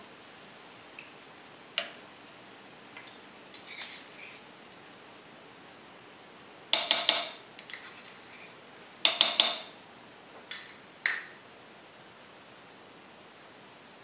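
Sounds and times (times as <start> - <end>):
metal spoon clinking on pan: 6.8 - 8.5, 9.1 - 9.8, 10.5 - 11.4.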